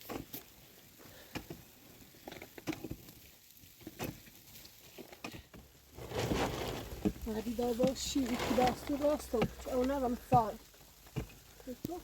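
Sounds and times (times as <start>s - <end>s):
objects knocking and tapping: 5.0s - 12.0s.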